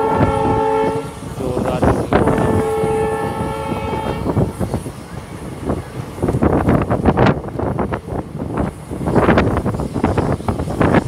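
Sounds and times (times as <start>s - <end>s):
train horn blasts: 0.0s - 4.6s
train wheels rumbling on track: 0.0s - 11.0s.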